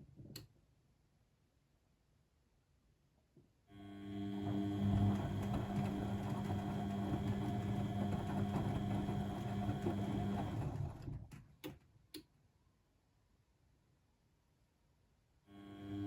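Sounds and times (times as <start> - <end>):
washing machine humming and whining: 4.1 - 11.4.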